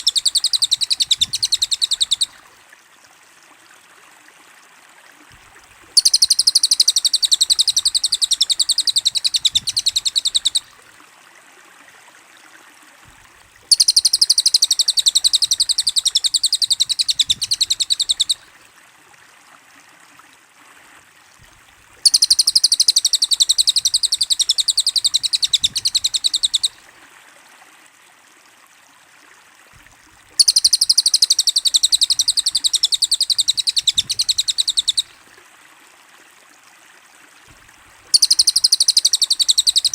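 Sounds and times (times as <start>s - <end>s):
fast high-pitched bird trill: 0.0s - 2.3s, 6.0s - 10.6s, 13.7s - 18.4s, 22.0s - 26.7s, 30.4s - 35.0s, 38.1s - 39.9s
faint steady hiss: 0.0s - 39.9s.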